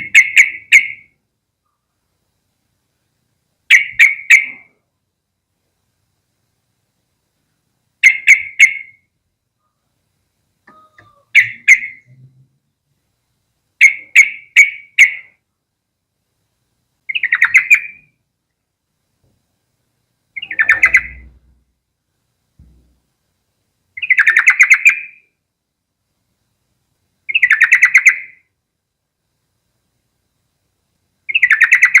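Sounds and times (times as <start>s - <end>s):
bird chirping: 0.0s - 1.9s, 3.7s - 4.8s, 8.0s - 9.9s, 10.6s - 12.5s, 13.8s - 15.4s, 17.0s - 18.2s, 20.3s - 21.6s, 24.0s - 25.4s, 27.2s - 28.5s, 31.2s - 32.0s
faint recording hiss: 0.0s - 32.0s.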